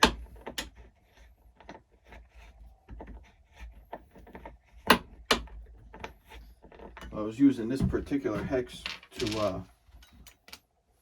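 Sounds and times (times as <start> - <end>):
clicks and scrapes of wheel parts: 8.8 - 10.6.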